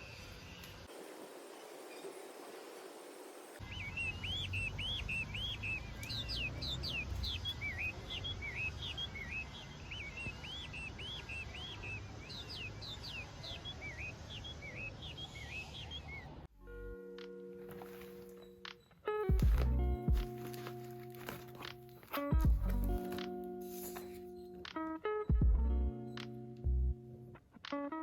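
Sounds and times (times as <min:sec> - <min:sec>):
birds chirping quickly: 0:03.6 - 0:16.5.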